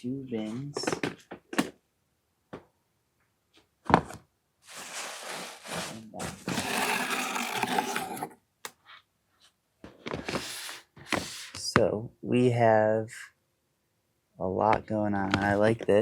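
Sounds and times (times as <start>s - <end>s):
packing material rustling: 4.6s - 8.3s.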